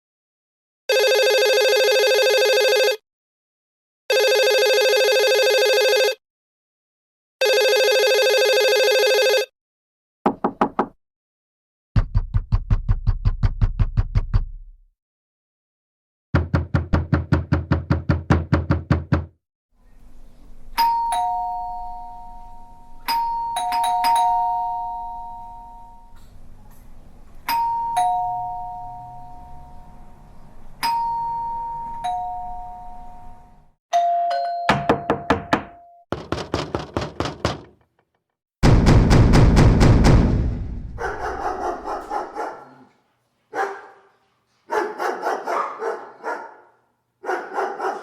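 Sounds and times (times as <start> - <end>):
knocking on a door: 10.3 - 11.0, 16.4 - 19.4, 34.7 - 37.9
two-note doorbell chime: 20.8 - 26.1, 27.5 - 29.8, 30.8 - 35.1.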